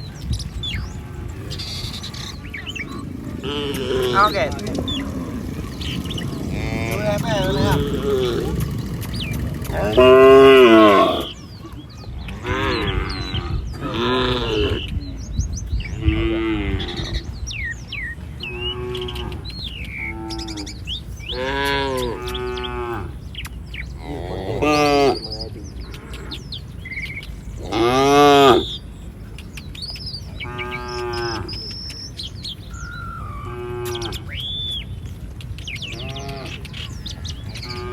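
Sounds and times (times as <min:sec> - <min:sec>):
cattle mooing: 0:00.6 - 0:11.4, 0:18.4 - 0:23.2, 0:24.0 - 0:26.4, 0:27.6 - 0:28.8, 0:30.4 - 0:31.6, 0:33.2 - 0:34.4, 0:37.6 - 0:37.9.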